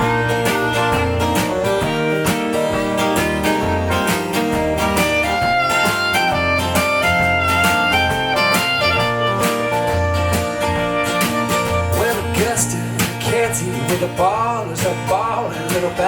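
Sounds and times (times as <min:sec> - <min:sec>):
melody of held notes: 0:00.0 - 0:12.2
bass line: 0:00.0 - 0:16.0
strummed acoustic guitar: 0:00.0 - 0:16.0.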